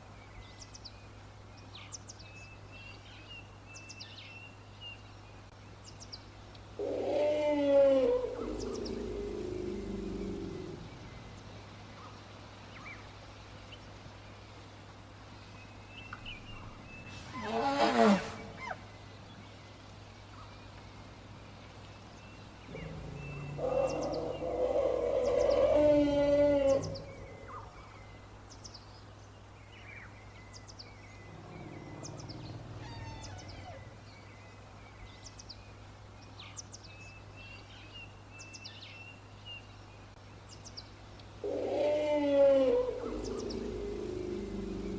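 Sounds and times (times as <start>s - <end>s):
birds chirping: 5.9s - 13.3s, 15.2s - 38.5s, 40.5s - 44.9s
elephant calling: 16.5s - 18.8s, 22.7s - 27.8s, 31.2s - 34.0s, 41.4s - 44.9s.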